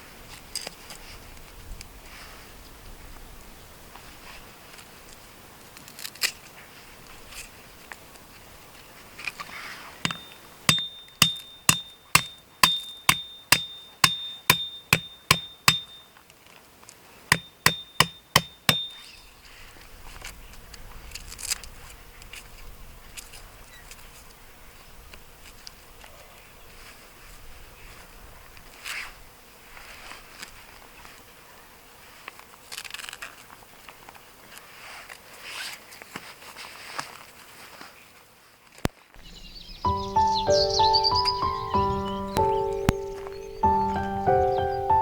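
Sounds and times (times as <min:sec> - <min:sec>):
hammer striking metal: 0:10.1 - 0:16.0, 0:17.3 - 0:19.1.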